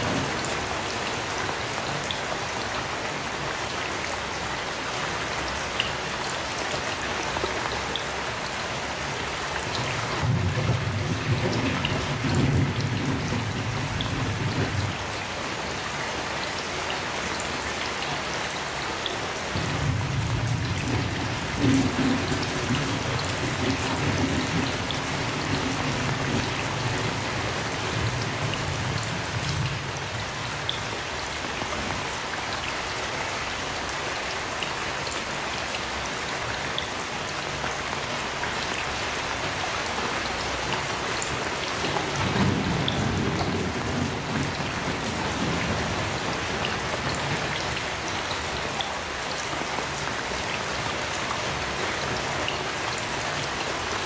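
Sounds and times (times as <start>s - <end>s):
heavy rain: 0.0s - 54.0s
distant thunder rumbling: 10.2s - 15.1s, 19.6s - 30.7s, 41.8s - 47.6s.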